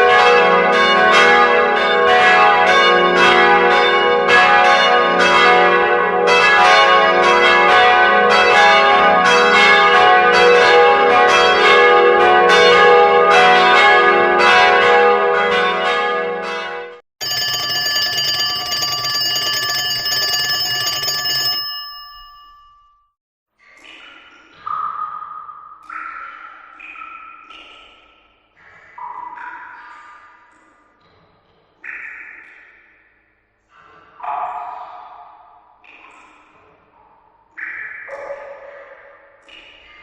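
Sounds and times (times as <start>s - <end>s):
bells ringing rapid peal: 17.2s - 23.0s
steady ringing tone: 17.2s - 23.1s.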